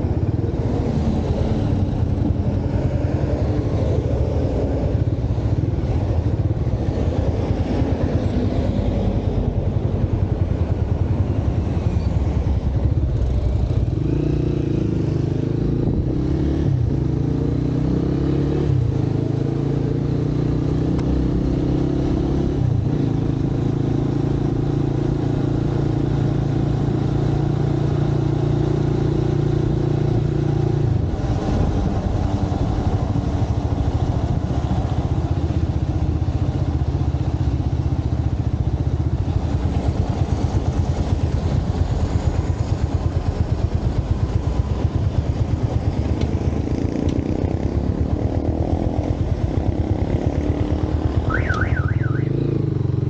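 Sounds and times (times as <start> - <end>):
road and traffic noise: 0.0 - 53.0
motorcycle engine running: 20.5 - 53.0.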